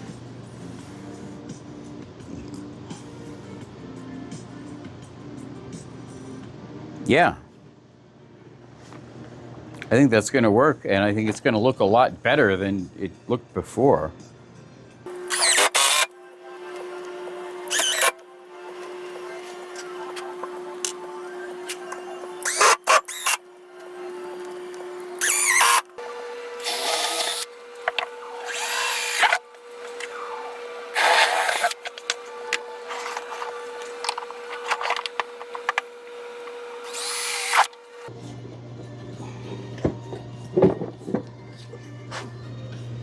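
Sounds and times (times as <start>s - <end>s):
background music: 15.0s - 43.0s
power drill driving screws: 15.1s - 38.1s.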